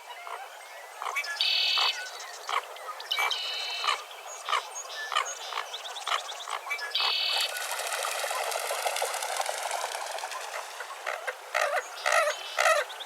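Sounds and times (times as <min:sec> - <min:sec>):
birds calling: 0:03.2 - 0:13.0.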